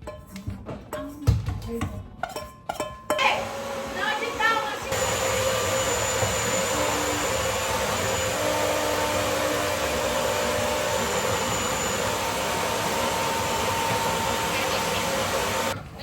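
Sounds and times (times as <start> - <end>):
electric blender running: 3.2 - 15.8.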